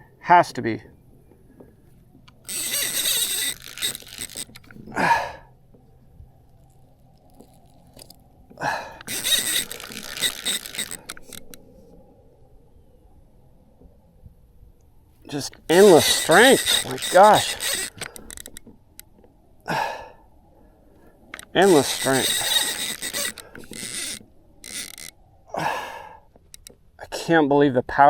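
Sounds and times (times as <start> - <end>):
fishing reel buzzing: 2.2 - 5.0, 5.6 - 11.7, 15.3 - 19.1, 21.3 - 25.2, 26.4 - 26.8.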